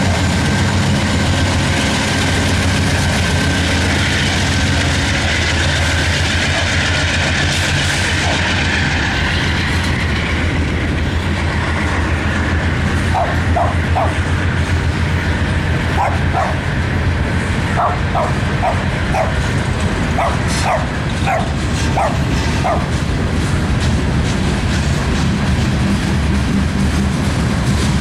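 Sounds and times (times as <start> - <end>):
freight train cars rolling past: 0.0 - 28.0
wheels clicking over rail joints: 0.0 - 28.0
dog barking: 13.0 - 17.0, 17.6 - 23.0.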